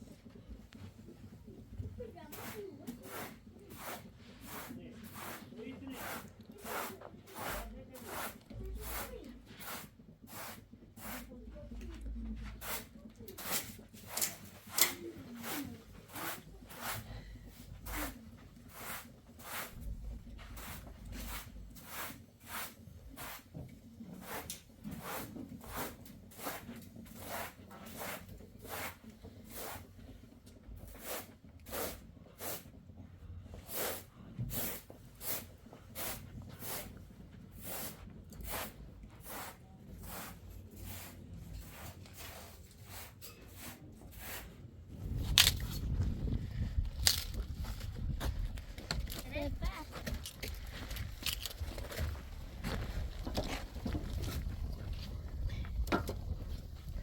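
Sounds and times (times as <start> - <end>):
sharp scraping strokes: 2.3 - 11.3, 12.6 - 23.5, 37.6 - 47.4.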